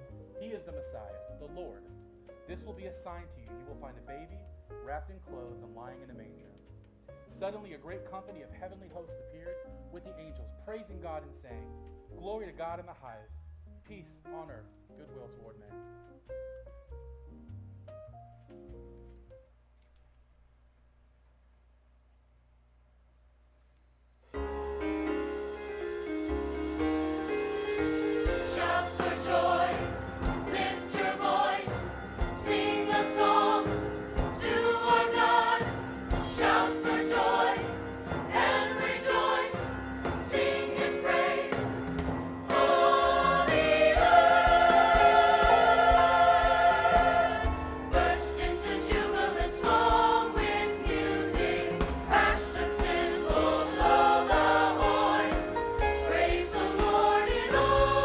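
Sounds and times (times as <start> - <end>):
instrumental accompaniment: 24.3 - 58.0
church choir singing: 25.3 - 58.0.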